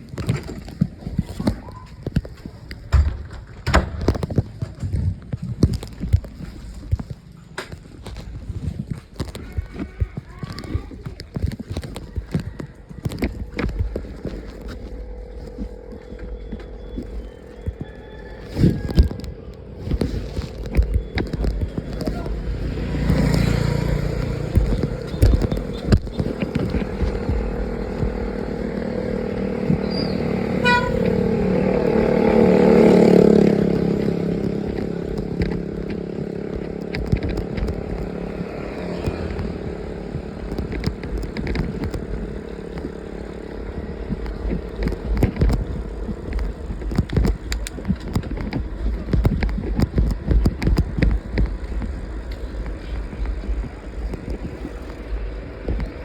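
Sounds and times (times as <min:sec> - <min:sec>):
knocks and rattles: 0:00.0 - 0:56.0
vehicle engine running: 0:08.1 - 0:56.0
vehicle passing: 0:14.2 - 0:49.5
car horn toot: 0:30.5 - 0:31.2.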